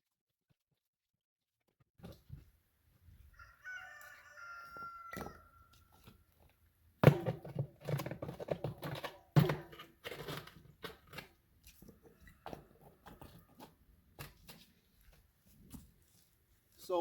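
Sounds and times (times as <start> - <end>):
bricks and stone clattering: 7.0 - 11.4.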